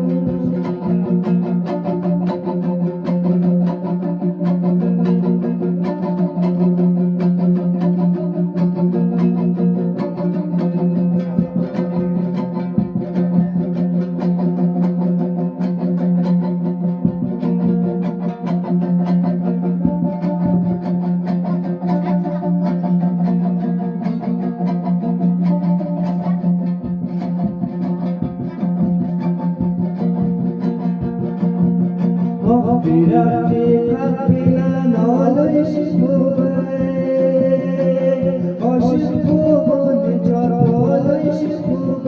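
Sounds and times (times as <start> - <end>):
plucked string instrument: 0.0 - 42.0.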